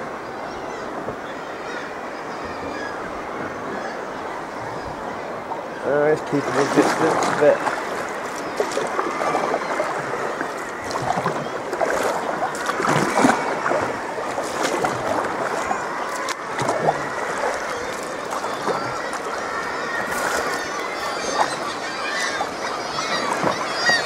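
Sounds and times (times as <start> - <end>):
water splashing against kayak hull: 5.5 - 24.0.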